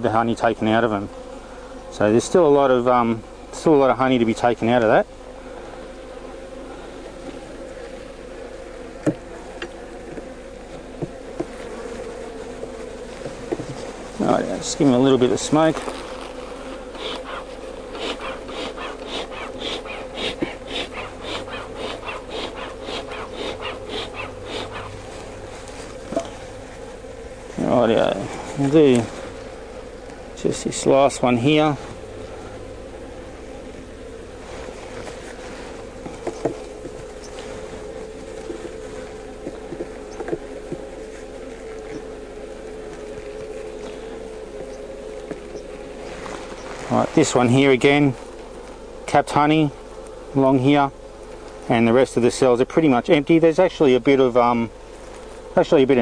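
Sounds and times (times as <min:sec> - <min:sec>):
bees buzzing: 0:00.0 - 0:56.0
honeybees humming: 0:00.0 - 0:56.0
bellows puffing air: 0:16.5 - 0:27.1.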